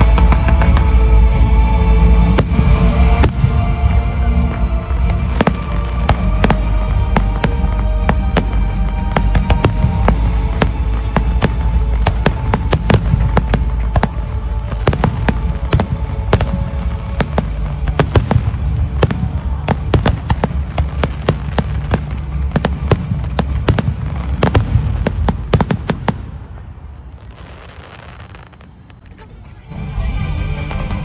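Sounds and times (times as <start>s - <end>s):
deep fireworks rumble: 0.0s - 31.0s
fireworks cracking: 0.0s - 31.0s.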